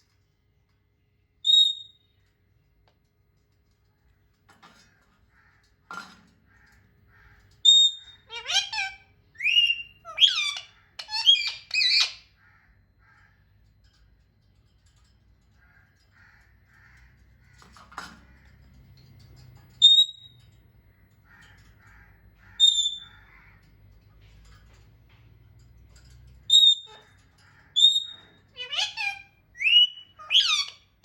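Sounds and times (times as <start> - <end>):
soft parrot chatter: 4.7 - 14.1, 25.5 - 31.0
parrot squawking: 7.6 - 12.3, 22.5 - 23.4, 26.5 - 31.0
sharp high-pitched parrot calls: 7.6 - 12.4, 22.5 - 23.4, 26.5 - 31.0.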